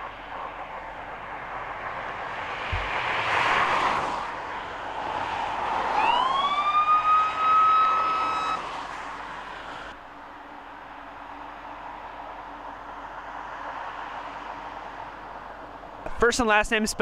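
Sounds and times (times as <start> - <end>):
emergency vehicle siren: 0.0 - 9.9
traffic rushing by: 0.0 - 17.0.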